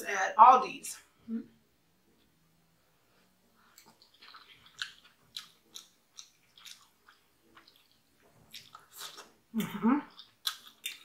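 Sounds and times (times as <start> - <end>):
faint chewing mouth clicks: 3.6 - 11.0.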